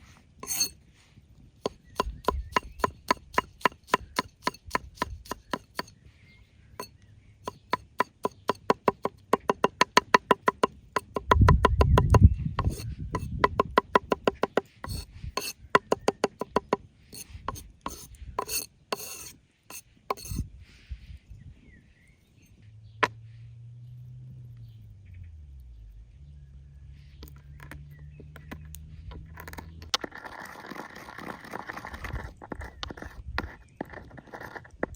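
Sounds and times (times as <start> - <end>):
knife chopping on wooden board: 0.4 - 0.7, 1.6 - 5.9, 7.4 - 20.4.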